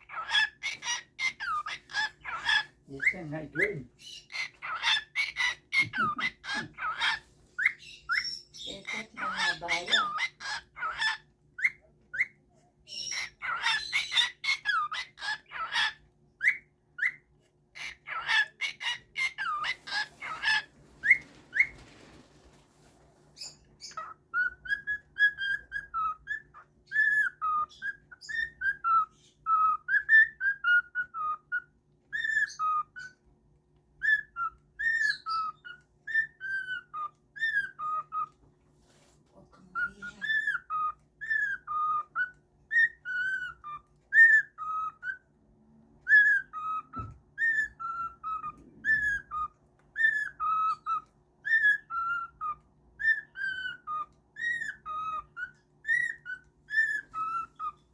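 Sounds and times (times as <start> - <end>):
pet bird squawking and chirping: 0.0 - 22.2, 23.3 - 38.4, 39.4 - 45.4, 46.0 - 57.9
bird whistling a tune: 23.4 - 33.2, 34.0 - 38.4, 39.8 - 45.2, 46.1 - 57.9.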